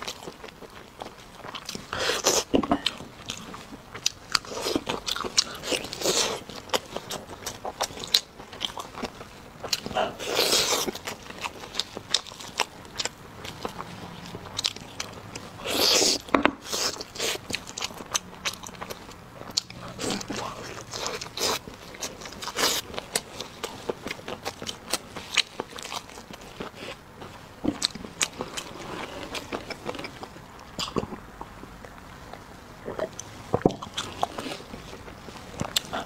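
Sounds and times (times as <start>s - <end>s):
chewing and biting meat: 0.0s - 31.6s.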